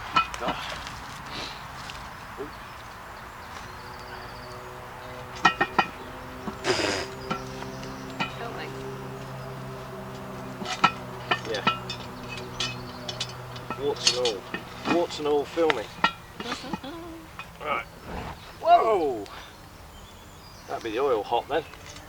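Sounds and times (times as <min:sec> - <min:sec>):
steady low hum: 0:01.8 - 0:20.7
metal cooking gear clinking: 0:05.4 - 0:06.0, 0:10.6 - 0:17.6.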